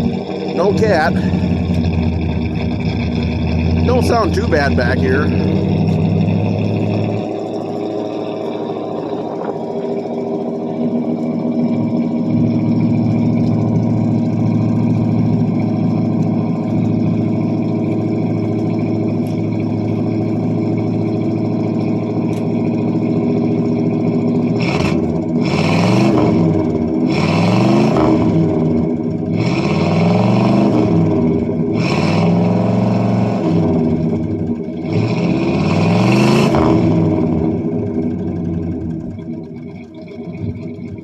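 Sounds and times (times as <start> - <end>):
car engine running: 0.0 - 41.0
engine revving: 0.0 - 41.0.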